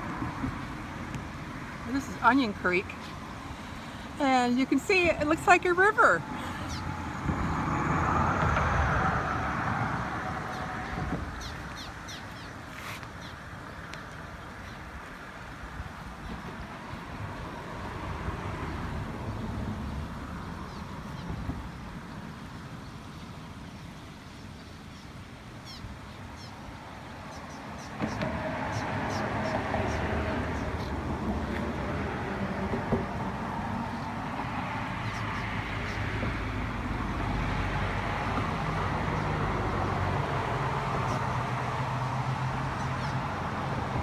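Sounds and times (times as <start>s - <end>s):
outdoor rushing noise: 0.0s - 13.2s
rushing roar: 6.0s - 11.4s.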